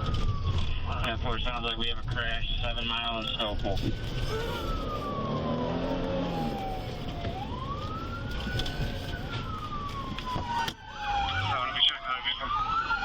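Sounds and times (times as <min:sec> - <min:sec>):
moving car rumble: 0:00.0 - 0:13.0
police siren wailing: 0:00.0 - 0:13.0
siren sweeping quickly: 0:03.2 - 0:13.0.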